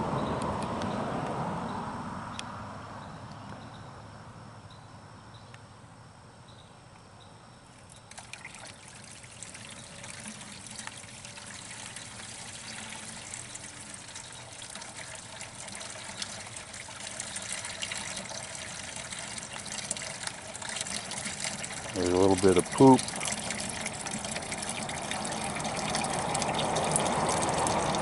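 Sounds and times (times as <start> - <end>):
water trickling from pipe: 7.8 - 28.0.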